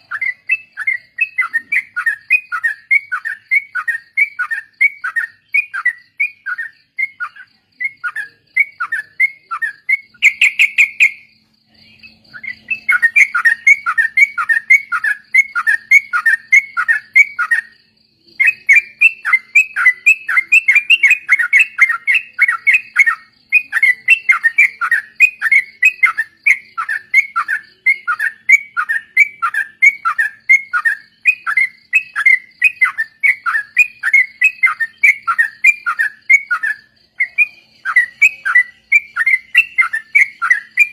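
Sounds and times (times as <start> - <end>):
bulbuls singing chattering runs: 0.0 - 17.7.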